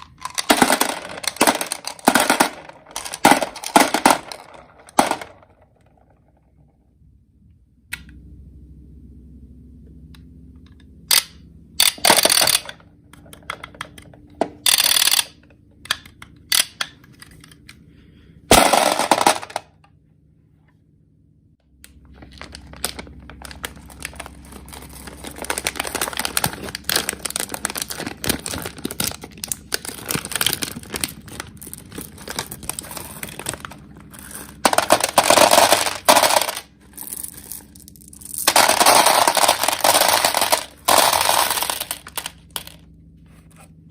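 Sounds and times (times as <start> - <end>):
candies rattling in a container: 0.0 - 5.7, 18.5 - 19.6, 22.0 - 42.8.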